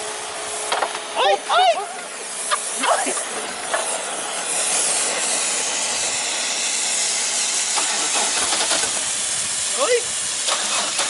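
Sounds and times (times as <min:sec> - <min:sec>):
steady hiss: 0:02.1 - 0:10.8.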